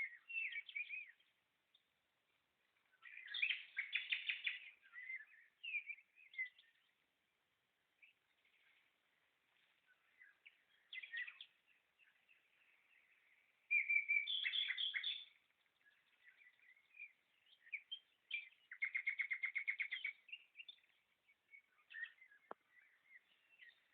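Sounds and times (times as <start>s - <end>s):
bird trill: 0.0s - 1.3s, 3.0s - 6.9s, 10.0s - 23.9s
songbirds chirping and singing: 0.0s - 23.9s.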